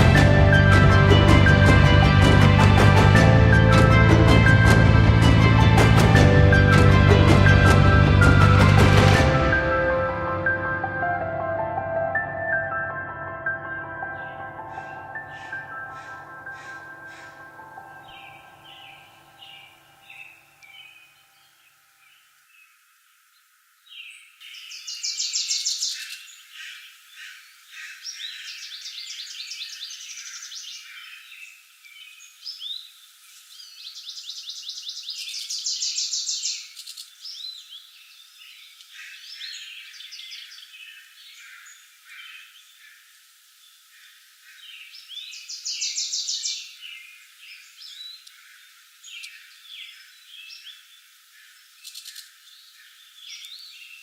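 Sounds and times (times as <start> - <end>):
woodland birds singing: 14.0 - 54.0.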